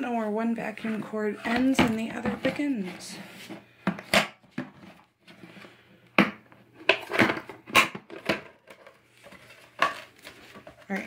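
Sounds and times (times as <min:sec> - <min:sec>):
hard objects knocking and clattering: 0:06.2 - 0:11.0.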